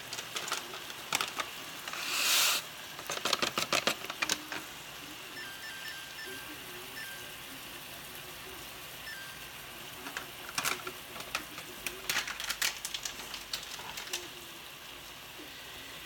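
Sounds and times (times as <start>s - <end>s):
sharp clicks and crackles: 0.0s - 2.0s, 3.0s - 4.7s, 10.0s - 14.5s
chicken sizzling in a skillet: 0.0s - 16.0s
short beeps: 5.4s - 7.4s, 9.0s - 9.4s.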